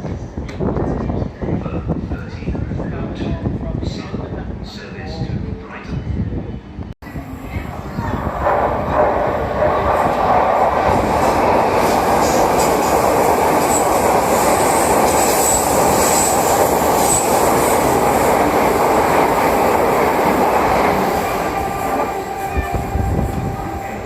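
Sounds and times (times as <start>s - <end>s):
train wheels rumbling on rail: 7.1s - 24.0s
high wheel squeals: 15.2s - 17.8s.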